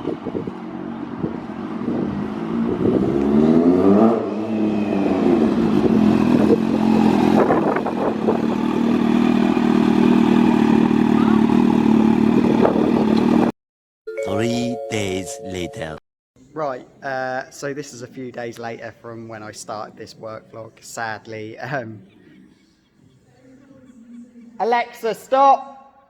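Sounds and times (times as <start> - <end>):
vehicle engine revving: 0.2 - 13.5.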